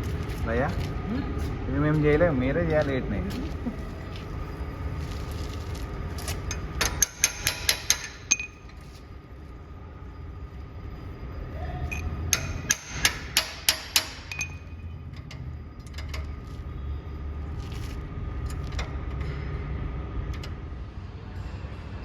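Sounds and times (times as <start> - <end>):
hammer striking metal: 6.5 - 8.6, 11.9 - 14.8.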